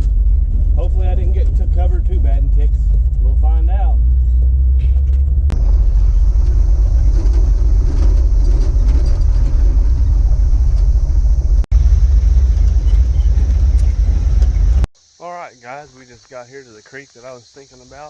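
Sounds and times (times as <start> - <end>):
pickup truck engine rumble: 0.0 - 14.9
tyres on gravel road: 0.0 - 14.9.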